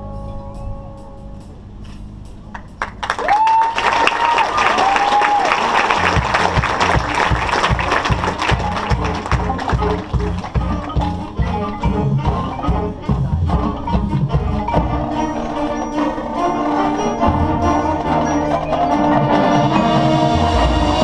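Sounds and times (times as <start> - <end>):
sustained band chords: 0.0 - 3.0, 5.4 - 21.0
drums: 0.0 - 21.0
mallet percussion: 5.7 - 21.0.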